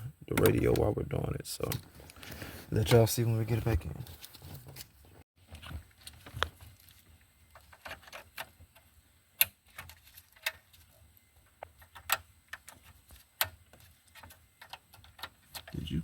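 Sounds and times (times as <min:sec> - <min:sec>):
light plastic rattles: 0:11.6 - 0:15.9.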